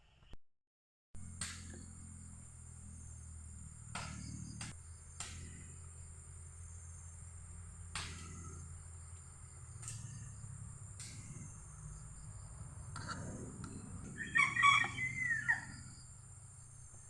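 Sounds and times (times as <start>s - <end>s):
low steady hum: 1.2s - 17.0s
insect chorus trilling: 8.5s - 17.0s.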